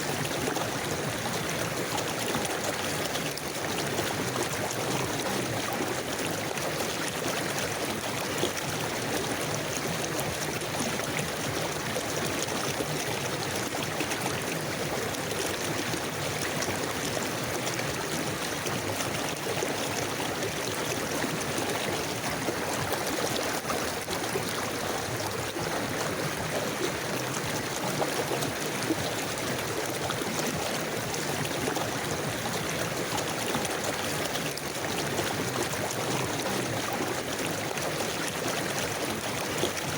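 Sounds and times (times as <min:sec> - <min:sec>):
river water babbling over stones: 0:00.0 - 0:39.9.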